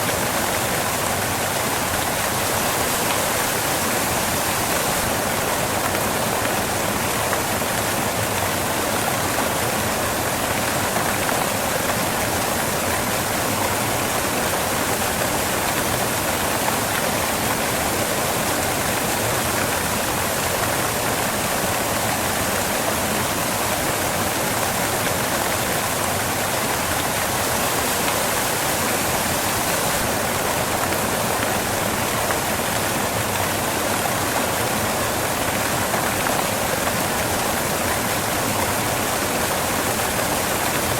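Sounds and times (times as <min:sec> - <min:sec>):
waterfall crashing onto rocks: 0:00.0 - 0:40.9.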